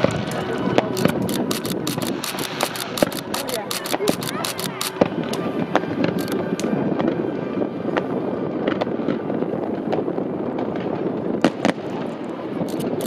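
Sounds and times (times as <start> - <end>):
firework shells bursting: 0.0 - 7.2, 9.8 - 13.0
fireworks crackling and popping: 0.0 - 13.0.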